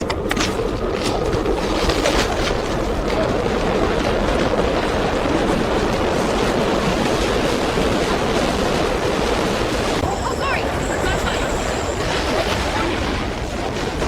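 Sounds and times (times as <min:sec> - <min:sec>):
subway train rumbling: 0:00.0 - 0:14.0.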